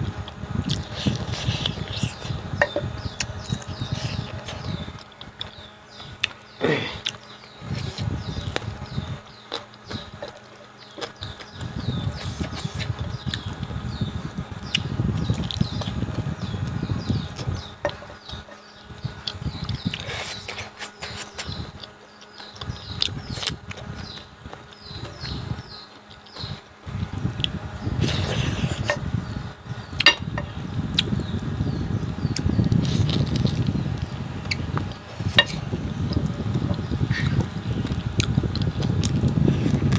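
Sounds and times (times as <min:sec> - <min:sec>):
person chewing food: 0:00.2 - 0:05.6, 0:07.0 - 0:07.2, 0:09.4 - 0:13.6, 0:16.6 - 0:24.9, 0:32.3 - 0:39.9.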